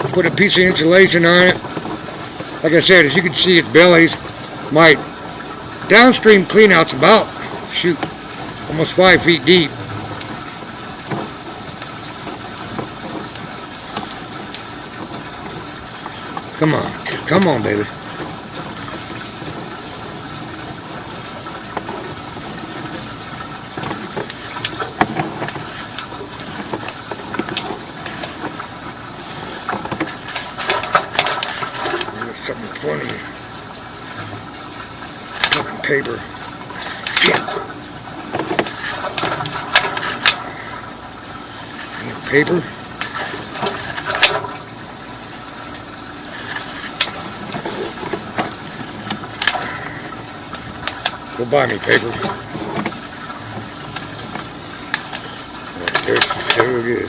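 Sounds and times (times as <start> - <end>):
steady engine-like hum: 0.0 - 57.0.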